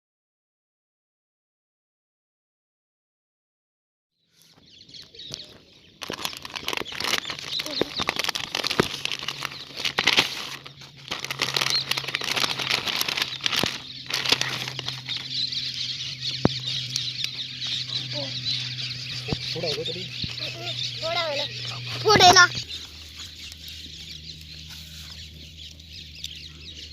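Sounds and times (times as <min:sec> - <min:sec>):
motorcycle engine low hum: 0:04.5 - 0:26.9
balloon fluttering and flapping: 0:06.0 - 0:15.3.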